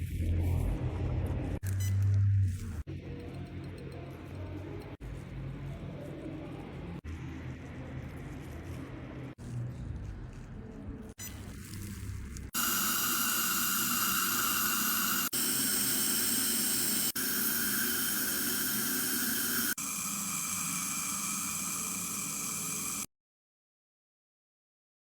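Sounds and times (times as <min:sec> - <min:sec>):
dental drill whining: 0:12.6 - 0:23.1.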